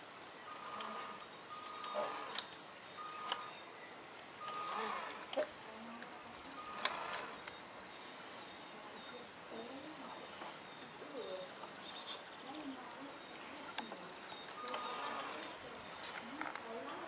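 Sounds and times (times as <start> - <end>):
faint outdoor hiss: 0.0 - 17.0
high bird chirps: 0.5 - 5.1.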